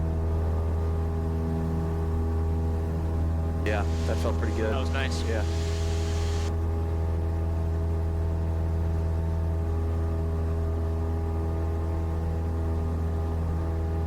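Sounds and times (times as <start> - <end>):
piston engine and propeller droning: 0.0 - 14.0.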